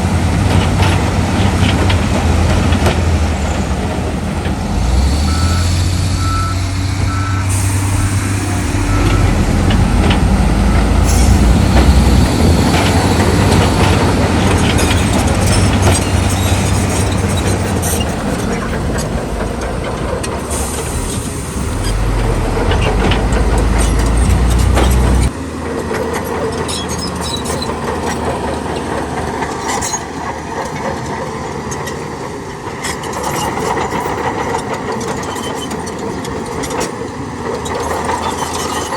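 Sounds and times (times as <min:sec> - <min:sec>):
diesel engine drone: 0:00.0 - 0:34.4
machinery knocks and clanks: 0:00.1 - 0:05.0, 0:06.8 - 0:31.9
reversing beeps: 0:05.2 - 0:12.5.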